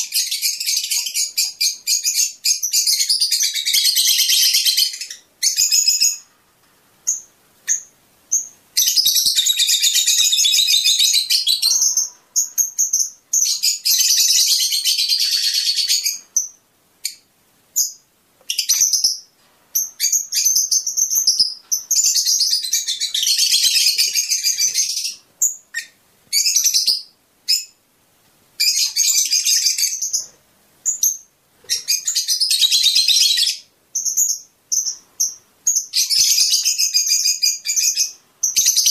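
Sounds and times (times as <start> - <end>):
sharp bird chirps: 7.0 - 17.2, 17.8 - 27.8, 28.6 - 38.9
lovebirds chattering shrilly: 7.1 - 17.2, 17.8 - 27.8, 28.6 - 38.9.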